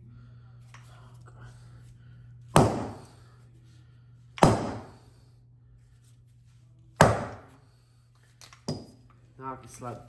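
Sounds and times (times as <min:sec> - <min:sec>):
steady low hum: 0:00.0 - 0:10.0
sharp knocks on metal: 0:04.4 - 0:04.9, 0:07.0 - 0:07.4.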